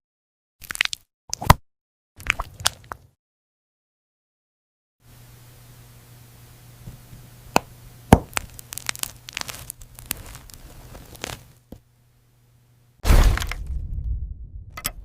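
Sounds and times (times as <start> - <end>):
gel plugs clicking and crackling: 8.2 - 11.4
rustling: 8.6 - 11.6.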